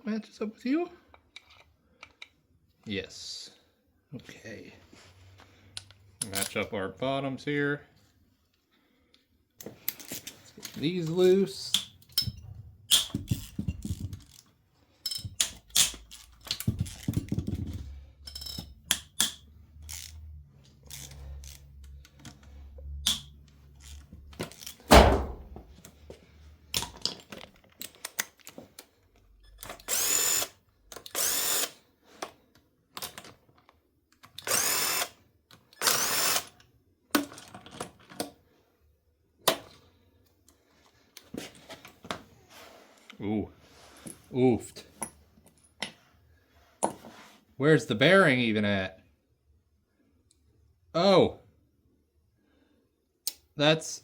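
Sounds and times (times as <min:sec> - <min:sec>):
metal tools clanking: 0:15.0 - 0:16.3
power tool whining: 0:29.8 - 0:30.5.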